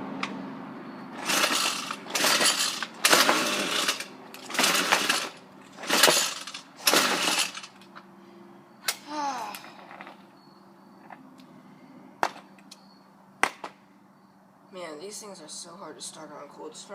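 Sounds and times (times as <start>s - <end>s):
recoil starter cord yanked: 1.2s - 8.0s.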